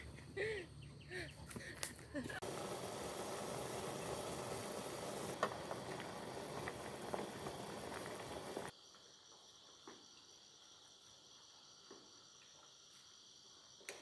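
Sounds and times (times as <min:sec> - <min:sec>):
food sizzling in a pot: 0:02.4 - 0:08.7
insects chirping: 0:02.4 - 0:14.0.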